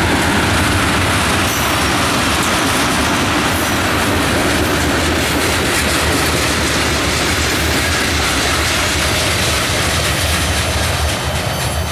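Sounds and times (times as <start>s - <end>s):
freight train wheels on rails: 0.0s - 11.9s.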